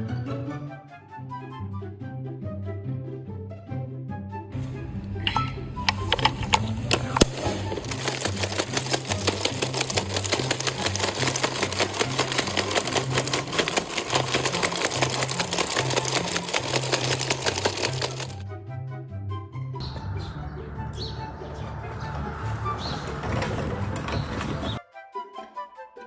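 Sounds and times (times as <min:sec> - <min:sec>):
fast mechanical clatter: 0:05.8 - 0:18.4, 0:21.6 - 0:24.8
background music with bass: 0:18.4 - 0:24.8.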